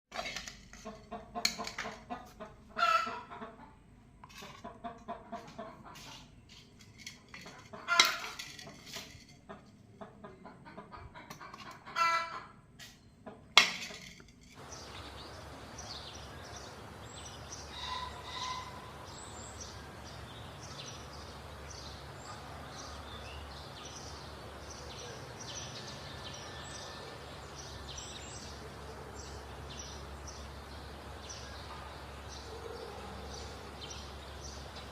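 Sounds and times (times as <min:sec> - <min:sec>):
chickens clucking: 0:00.7 - 0:06.4, 0:07.4 - 0:08.5, 0:09.4 - 0:13.6, 0:14.6 - 0:34.9
outdoor hiss: 0:14.6 - 0:32.5.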